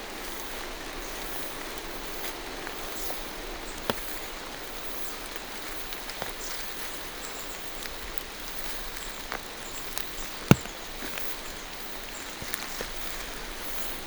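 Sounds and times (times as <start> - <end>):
rain falling through trees: 0.0 - 14.0
heavy drops tapping: 10.5 - 10.7.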